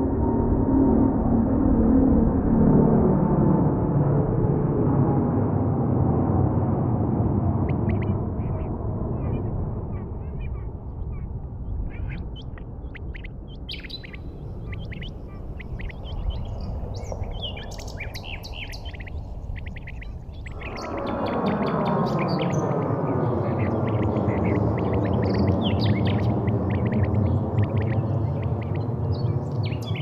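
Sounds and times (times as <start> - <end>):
steady low rumble: 0.0 - 30.0
birds chirping: 7.7 - 30.0.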